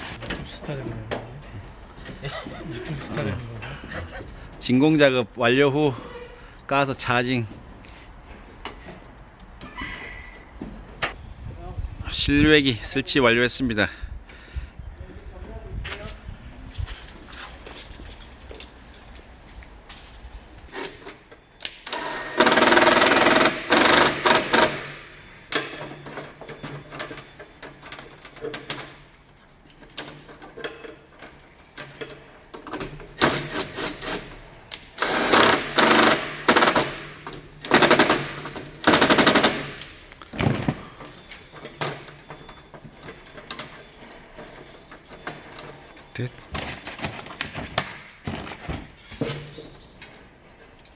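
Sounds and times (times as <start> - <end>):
power tool rattling: 21.7 - 29.1, 29.7 - 49.7.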